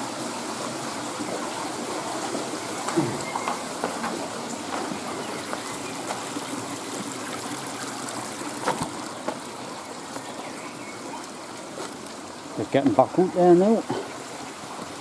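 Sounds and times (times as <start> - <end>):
stream rushing: 0.0 - 15.0.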